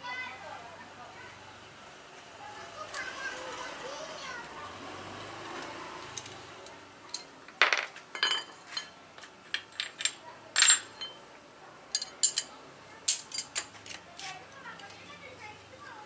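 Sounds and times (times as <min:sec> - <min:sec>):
metal tools clinking: 0:07.1 - 0:11.2, 0:11.9 - 0:12.5, 0:13.1 - 0:14.0.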